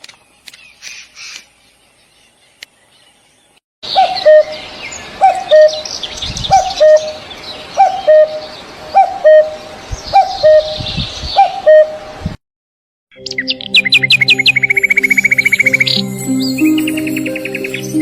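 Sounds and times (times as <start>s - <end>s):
birds chirping: 0.1s - 12.0s, 13.1s - 18.0s.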